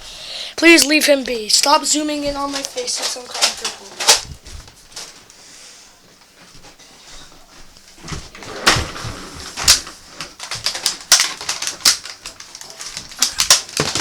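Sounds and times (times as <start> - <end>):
quiet scuffling: 1.1 - 10.4.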